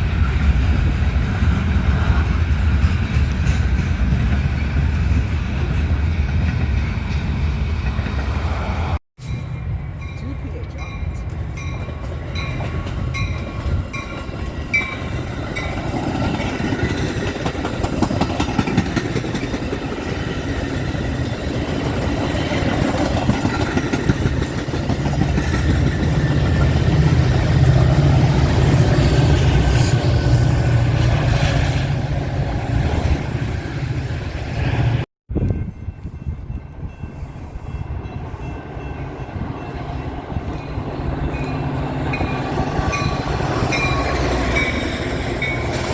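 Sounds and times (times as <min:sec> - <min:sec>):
diesel locomotive engine drone: 0:00.0 - 0:45.9
wheels clacking over rails: 0:11.7 - 0:30.0.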